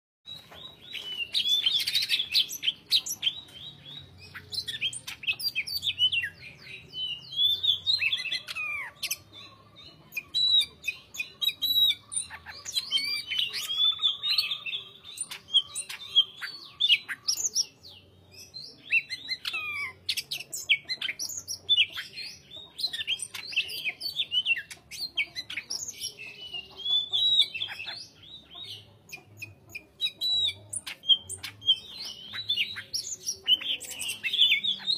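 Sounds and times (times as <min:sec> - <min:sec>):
bird whistling and chirping: 0:00.3 - 0:34.9.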